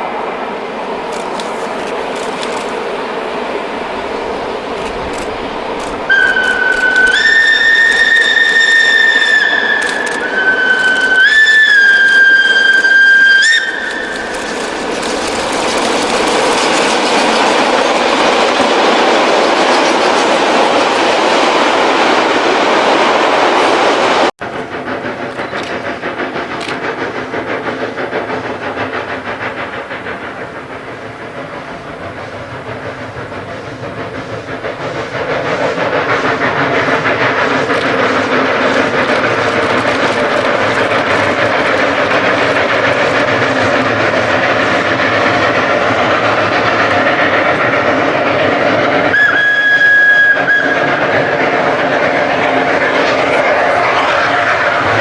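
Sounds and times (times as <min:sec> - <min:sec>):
train rumbling and clattering on rails: 0:00.0 - 0:55.0
steam whistle blast: 0:06.1 - 0:14.2, 0:49.1 - 0:51.1.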